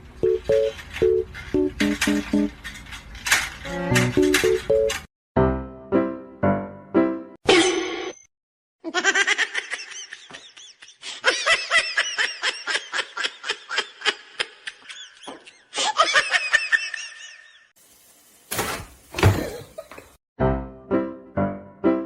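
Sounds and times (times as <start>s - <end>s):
person laughing hard: 8.9s - 17.6s.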